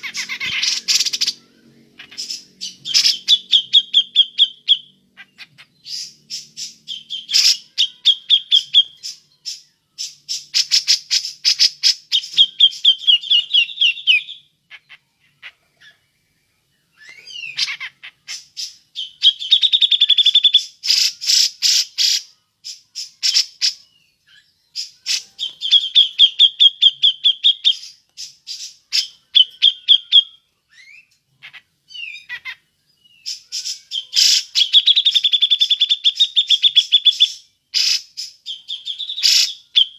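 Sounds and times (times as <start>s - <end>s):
bulbul chattering calls: 0.0s - 15.5s.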